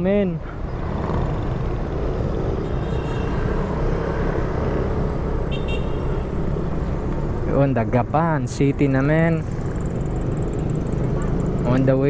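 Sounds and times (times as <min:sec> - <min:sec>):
motorcycle engine drone: 0:08.8 - 0:12.0.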